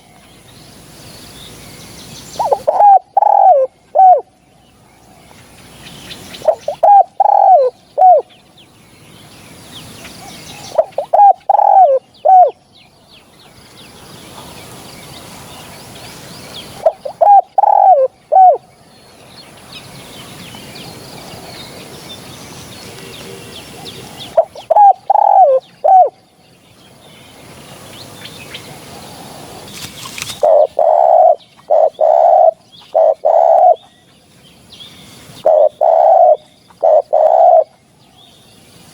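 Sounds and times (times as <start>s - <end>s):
dove cooing: 2.4s - 4.3s, 6.4s - 8.3s, 10.5s - 12.6s, 16.8s - 18.6s, 22.9s - 26.2s, 30.3s - 33.8s, 35.4s - 37.8s.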